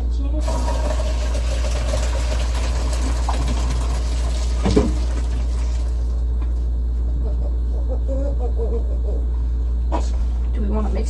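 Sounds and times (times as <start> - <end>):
water pouring into strainer: 0.4 - 6.2
steady low hum: 5.0 - 11.0.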